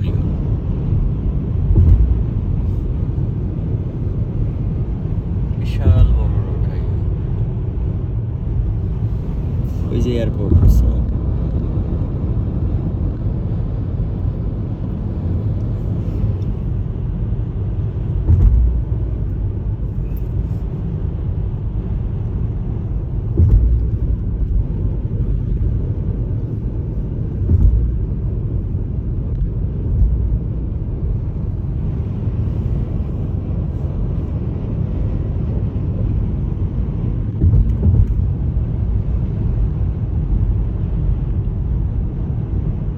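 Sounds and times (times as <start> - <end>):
road vehicle rumbling: 0.0 - 42.9
vehicle bumps: 0.9 - 3.9, 5.6 - 7.4, 8.4 - 13.3, 16.3 - 32.0, 36.3 - 40.3.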